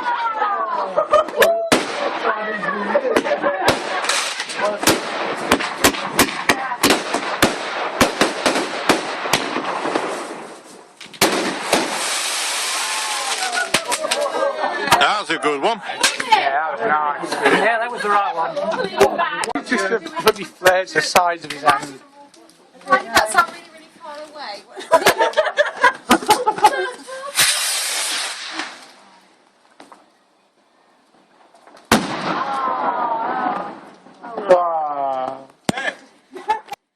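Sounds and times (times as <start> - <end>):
people's voices: 0.0 - 7.0, 12.8 - 27.5
fireworks bangs: 1.4 - 15.0, 26.0 - 30.0, 31.3 - 34.4
fireworks crackling: 1.7 - 16.4, 19.4 - 30.2, 31.0 - 34.4.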